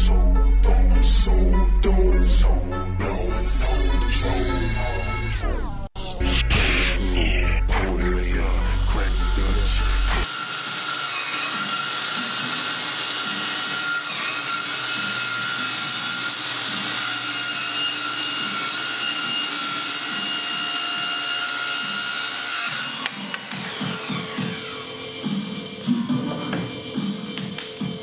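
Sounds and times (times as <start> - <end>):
power tool cutting wood: 8.2 - 28.0.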